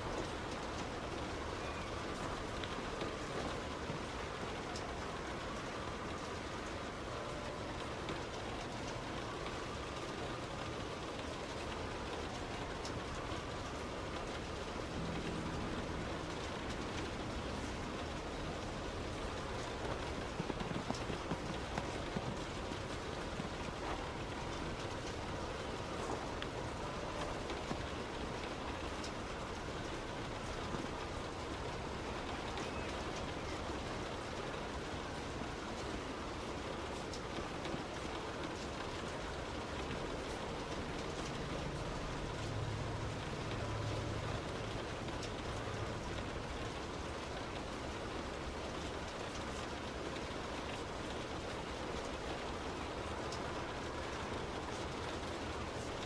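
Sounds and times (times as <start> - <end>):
heavy rain hitting a car: 0.0 - 56.0
wet road noise: 0.0 - 56.0.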